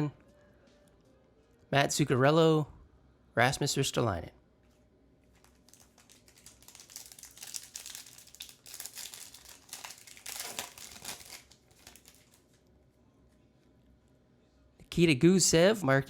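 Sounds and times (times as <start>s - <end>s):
foil wrapper crinkling and tearing: 5.4s - 12.6s.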